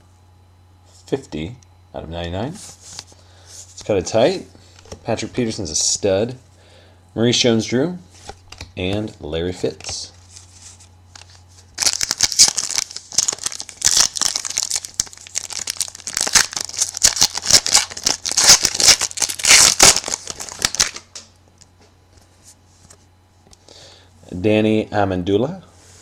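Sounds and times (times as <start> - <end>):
plastic wrapper crinkling and tearing: 11.1 - 21.2.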